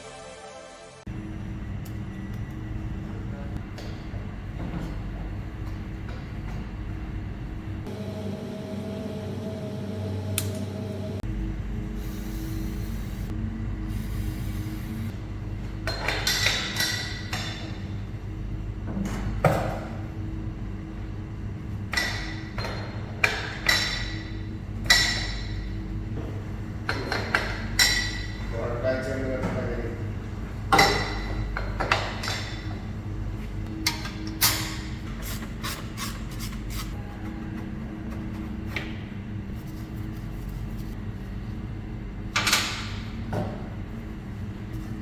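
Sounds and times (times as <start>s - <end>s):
steady low hum: 1.0s - 45.0s.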